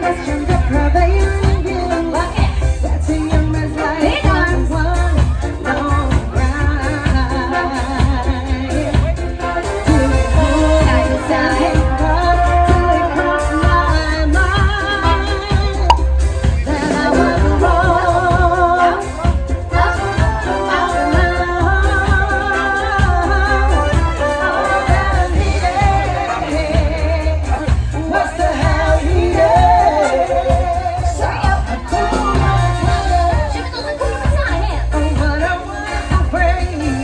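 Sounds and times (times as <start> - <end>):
street band dance music: 0.0 - 37.0.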